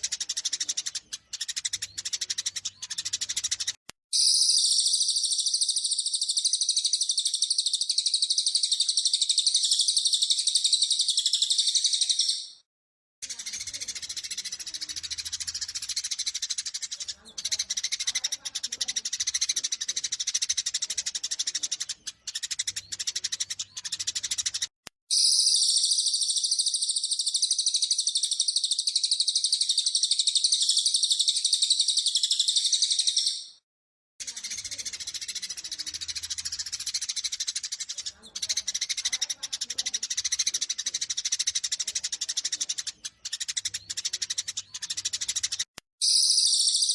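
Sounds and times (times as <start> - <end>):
bird trilling: 0.0 - 12.6, 13.2 - 33.6, 46.0 - 46.9
sparrows chirping: 0.0 - 12.6, 13.2 - 33.6, 34.2 - 46.9.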